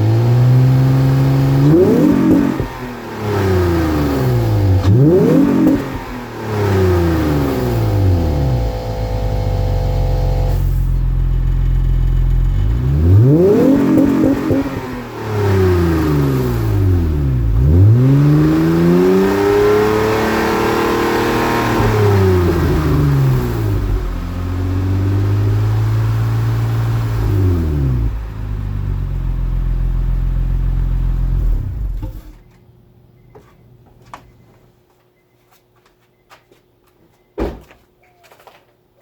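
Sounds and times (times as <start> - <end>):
car engine revving: 0.0 - 32.2
thump: 31.9 - 32.4, 37.4 - 37.8.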